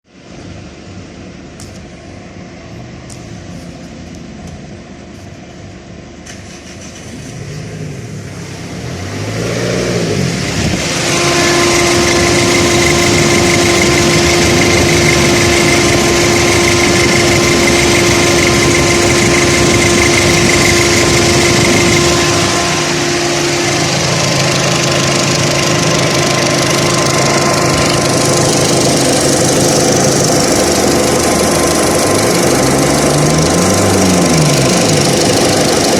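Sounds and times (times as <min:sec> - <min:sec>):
car engine running: 0:00.1 - 0:35.9
radiator cooling fan rushing: 0:09.9 - 0:35.9.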